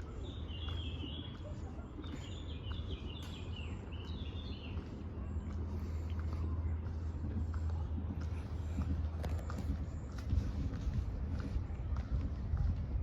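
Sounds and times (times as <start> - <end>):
songbird chirping: 0.0 - 6.3
low background rumble: 0.0 - 13.0.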